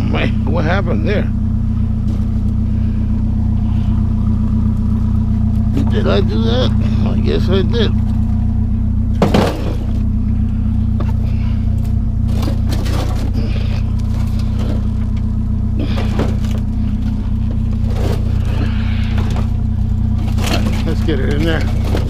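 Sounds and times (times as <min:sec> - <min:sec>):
truck engine idling: 0:00.0 - 0:22.0
scrap clattering: 0:07.9 - 0:22.0.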